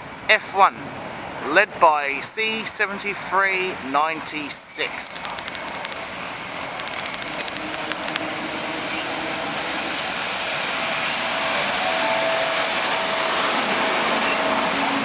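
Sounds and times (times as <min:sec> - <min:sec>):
train wheels rushing on rails: 0:02.2 - 0:15.0
steady tone: 0:06.0 - 0:15.0.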